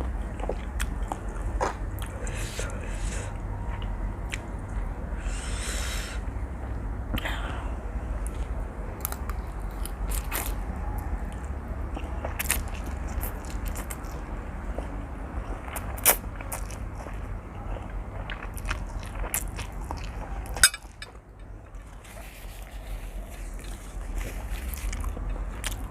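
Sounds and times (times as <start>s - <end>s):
chewing noodles: 0.0s - 2.7s, 8.2s - 25.9s.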